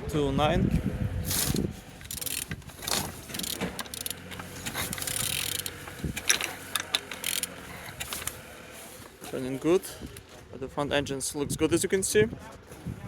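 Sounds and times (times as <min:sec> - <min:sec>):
metallic rattling: 0:01.3 - 0:08.5
ratchet clicks: 0:01.4 - 0:08.4.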